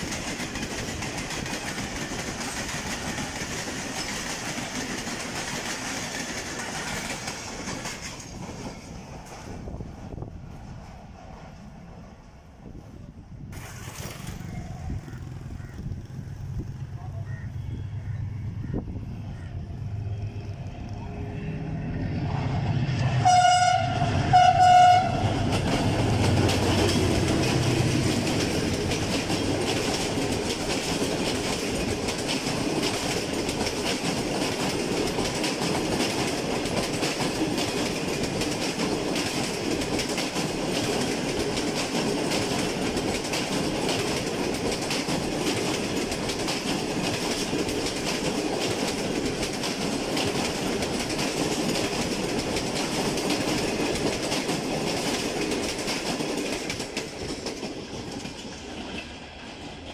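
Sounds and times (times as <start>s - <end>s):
wheels clattering over rail joints: 0.0s - 12.4s, 13.5s - 15.7s, 24.8s - 59.9s
diesel locomotive engine rumble: 0.0s - 59.9s
train horn blasts: 23.2s - 25.5s.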